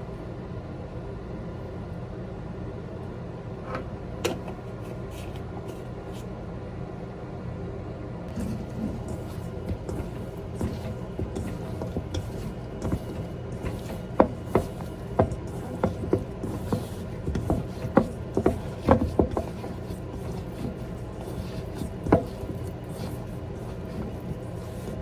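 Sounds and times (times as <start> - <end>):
knife cutting on wooden board: 8.3 - 25.0.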